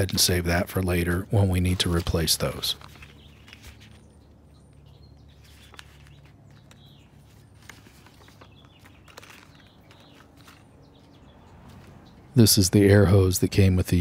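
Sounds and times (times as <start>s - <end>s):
low steady hum: 0.0s - 13.5s
high bird chirps: 3.0s - 12.4s.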